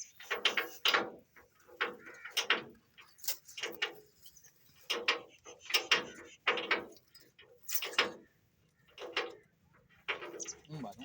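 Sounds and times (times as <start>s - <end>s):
steel knocking and clanking: 0.0s - 10.6s.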